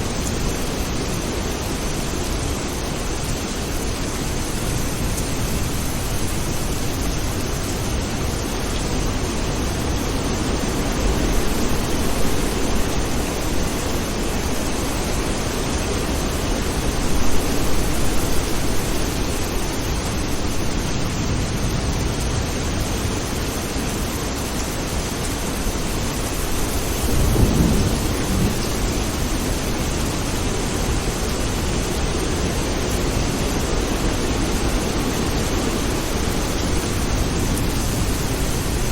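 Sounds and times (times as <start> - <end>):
steady rain falling: 0.0 - 38.9
thunder rumbling: 26.5 - 32.1.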